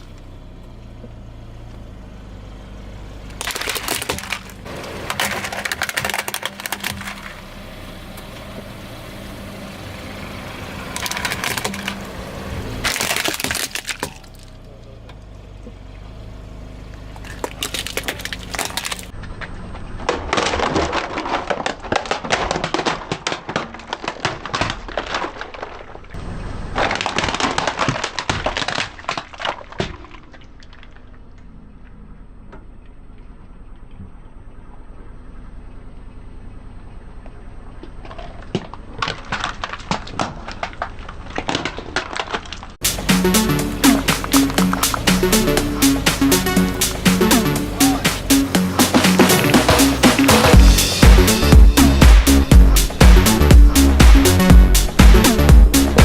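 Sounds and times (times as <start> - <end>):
car engine running: 0.0 - 20.5, 42.8 - 56.0
objects crushed under car tyre: 3.3 - 8.0, 10.8 - 14.7, 16.9 - 31.7, 37.8 - 56.0.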